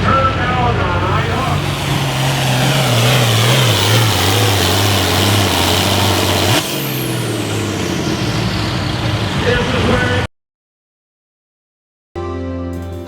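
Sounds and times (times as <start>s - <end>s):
tractor engine under load: 0.9s - 10.3s
turbo whine: 1.0s - 10.3s.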